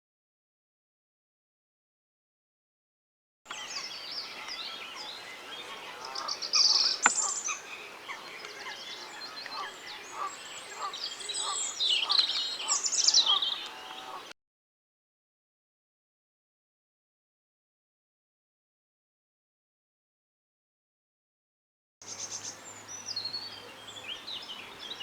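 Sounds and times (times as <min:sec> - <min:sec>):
small birds singing: 0:03.5 - 0:14.3, 0:22.0 - 0:25.0.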